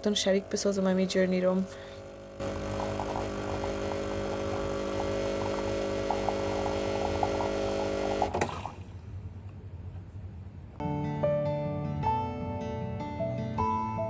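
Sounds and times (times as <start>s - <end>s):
espresso machine humming: 0.0s - 8.8s.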